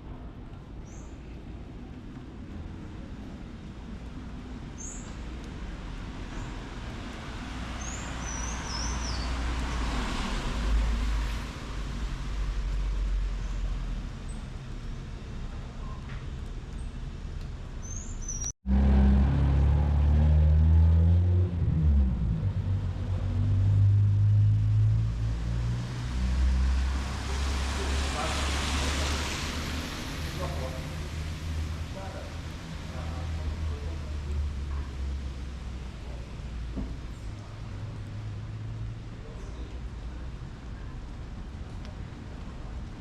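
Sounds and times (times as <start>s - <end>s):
traffic rumble: 0.0s - 43.0s
close vehicle engine hum: 1.8s - 43.0s
bird chirps: 17.8s - 18.5s.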